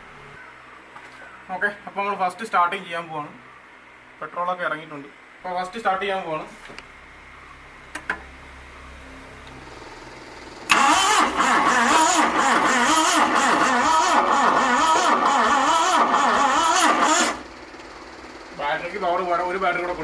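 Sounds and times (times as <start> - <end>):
starter motor cranking engine: 9.7 - 20.0.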